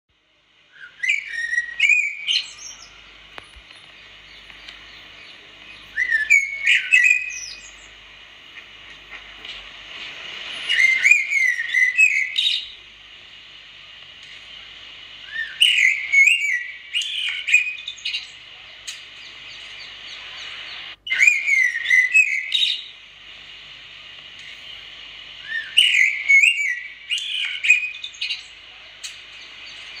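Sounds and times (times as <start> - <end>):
steady high hiss: 0.1 - 30.0
songbird whistling: 0.7 - 3.2, 3.9 - 8.0, 10.5 - 12.8, 15.2 - 23.0, 25.4 - 28.6.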